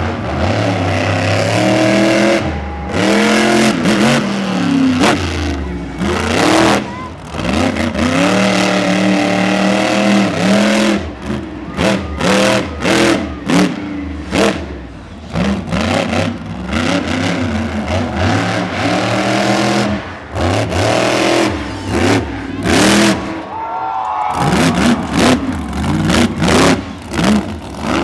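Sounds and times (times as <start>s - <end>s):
monster truck engine revving: 0.0s - 28.0s.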